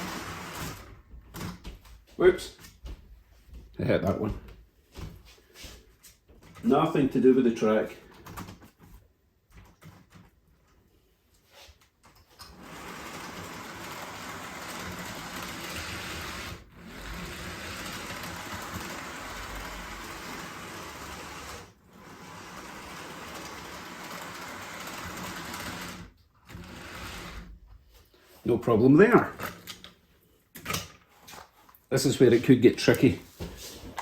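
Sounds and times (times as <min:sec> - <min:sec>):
model train motor whirring: 0:00.0 - 0:00.8, 0:12.5 - 0:27.5.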